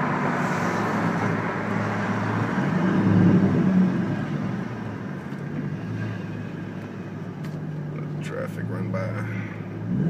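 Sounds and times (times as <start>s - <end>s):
road noise: 0.0s - 10.0s
car engine from inside cabin: 6.8s - 10.0s.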